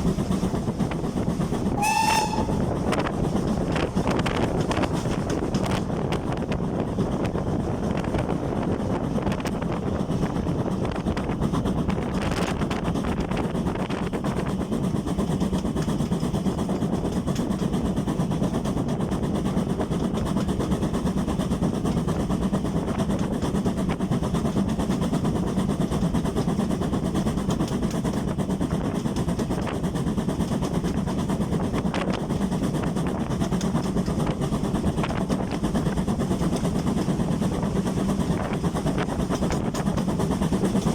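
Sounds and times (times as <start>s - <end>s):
steam train rumbling: 0.0s - 40.9s.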